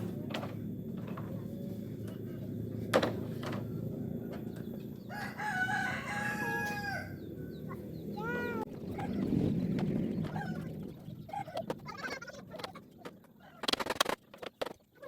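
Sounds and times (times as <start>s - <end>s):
rooster crowing: 5.0s - 7.5s.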